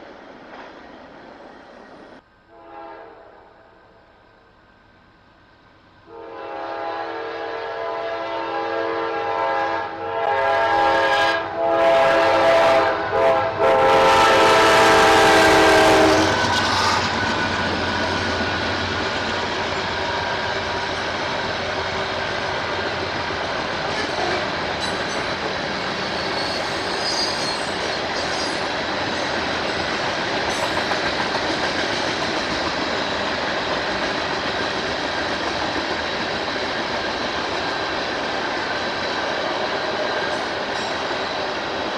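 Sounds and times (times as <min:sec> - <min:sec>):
train rumble: 0:00.0 - 0:41.9
locomotive air horn blasts: 0:02.5 - 0:03.6, 0:06.1 - 0:16.4
train wheels clacking on rails: 0:14.4 - 0:41.9.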